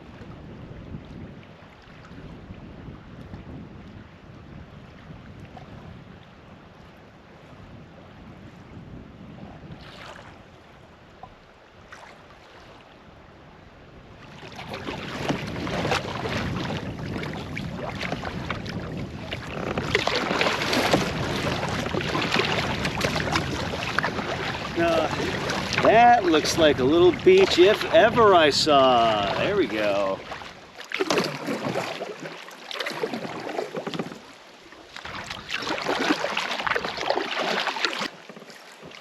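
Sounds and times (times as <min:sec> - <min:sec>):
canoe paddle splashing in water: 0:09.7 - 0:13.0, 0:14.1 - 0:39.0
water dripping off paddle: 0:14.6 - 0:39.0.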